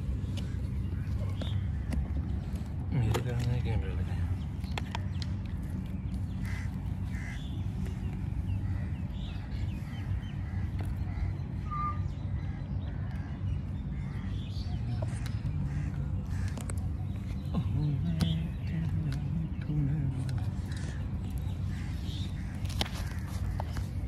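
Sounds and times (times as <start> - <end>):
steady low rumble: 0.0 - 24.0
crow-like caws: 6.4 - 7.9, 8.6 - 11.3, 15.7 - 16.6.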